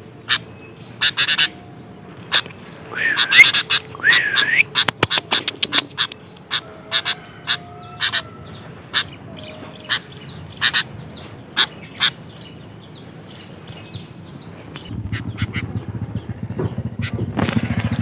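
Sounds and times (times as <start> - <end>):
low wind rumble: 0.0 - 18.0
short sharp bird calls: 0.2 - 1.6, 2.3 - 12.6.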